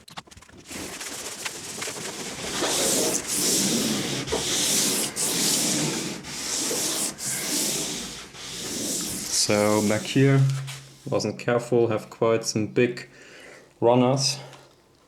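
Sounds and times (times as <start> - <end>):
sandpaper rubbing on hull: 0.6 - 11.2.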